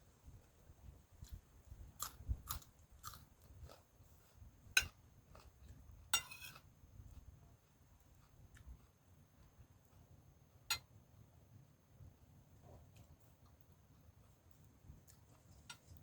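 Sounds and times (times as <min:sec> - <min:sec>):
person chewing food: 0:01.1 - 0:10.1, 0:14.2 - 0:16.0
crunchy bite: 0:02.0 - 0:03.9.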